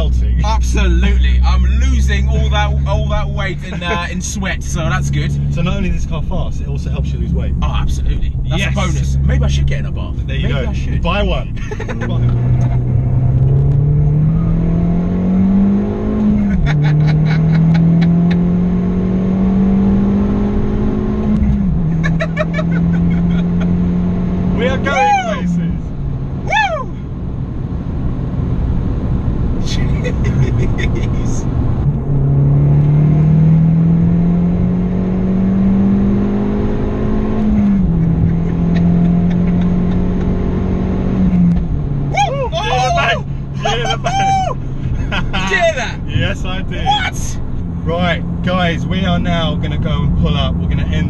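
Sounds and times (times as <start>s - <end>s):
car engine accelerating: 0.0s - 51.0s
car engine pulling under load: 29.1s - 42.1s.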